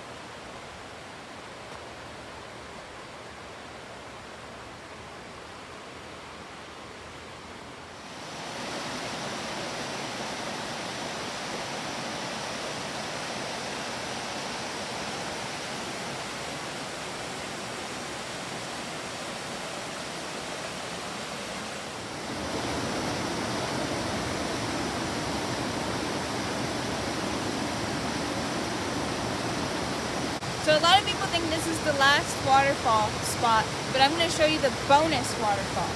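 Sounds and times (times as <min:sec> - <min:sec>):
waterfall rushing: 0:08.0 - 0:35.9.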